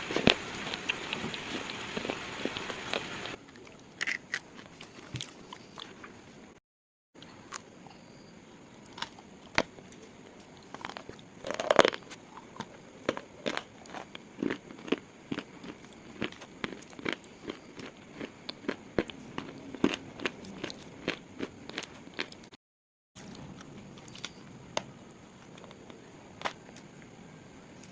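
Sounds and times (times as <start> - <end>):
slate crunching and cracking: 4.0 - 5.3.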